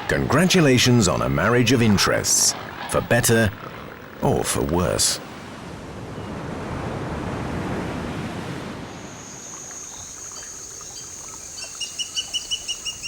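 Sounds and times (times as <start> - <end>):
surf washing on beach: 0.0 - 10.2.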